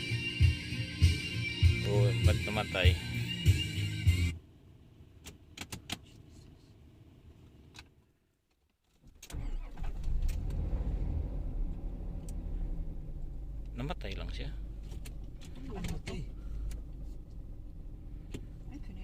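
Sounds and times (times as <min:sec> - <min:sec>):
vehicle engine starting and running: 0:09.2 - 0:19.0.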